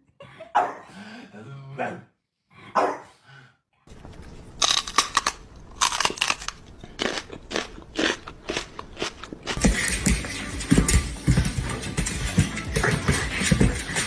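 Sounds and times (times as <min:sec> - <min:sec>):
crunching: 0:03.9 - 0:09.8.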